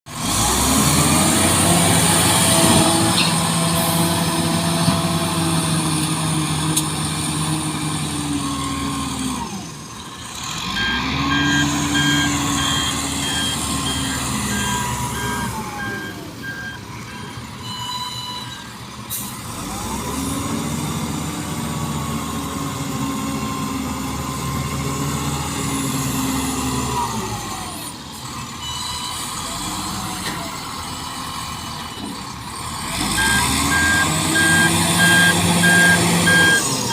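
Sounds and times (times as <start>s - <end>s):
heavy diesel engine revving: 0.1s - 17.1s, 19.0s - 28.4s, 32.3s - 36.9s
reversing alarm beeps: 10.8s - 18.8s, 33.2s - 36.9s.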